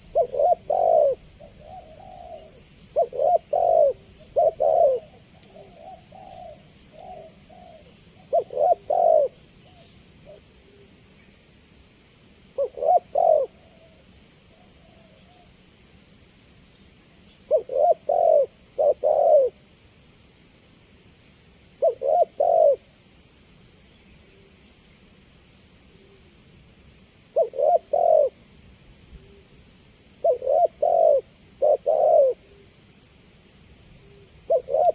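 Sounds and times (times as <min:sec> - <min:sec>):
dove cooing: 0:00.0 - 0:10.8, 0:12.6 - 0:15.4, 0:17.5 - 0:19.6, 0:21.8 - 0:22.8, 0:27.4 - 0:28.4, 0:30.2 - 0:32.6, 0:34.4 - 0:34.9
high-pitched hiss: 0:00.0 - 0:34.9.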